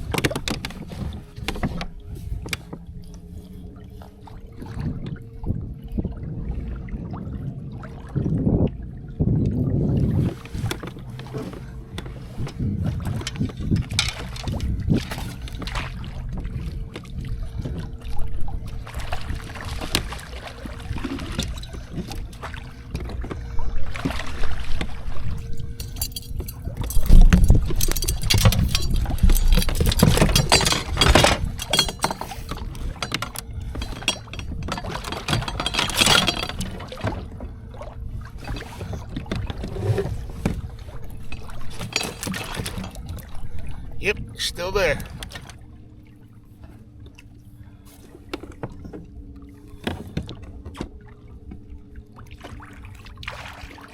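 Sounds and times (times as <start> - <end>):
water splashing against kayak hull: 9.4 - 25.8, 26.5 - 45.7, 46.6 - 53.9.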